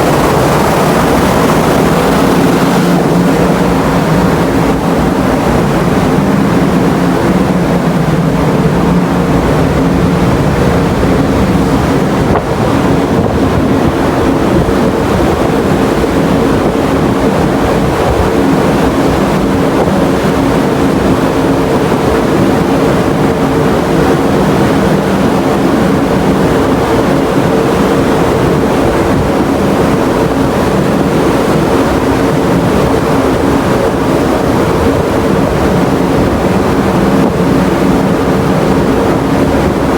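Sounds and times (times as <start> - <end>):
ferry engines droning: 0.0 - 39.9
wind on microphone: 0.0 - 39.9.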